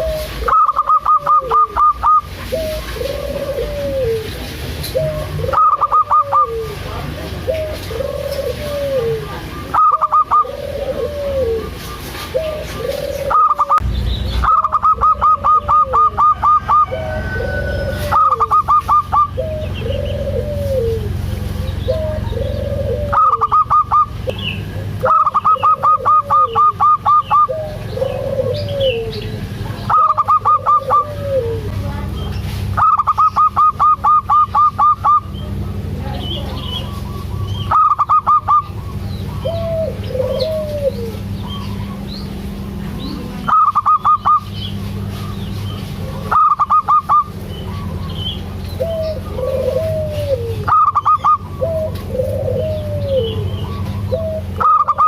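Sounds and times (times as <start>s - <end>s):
dove calling: 0.0s - 55.0s
sharp staccato bird notes: 13.3s - 16.8s.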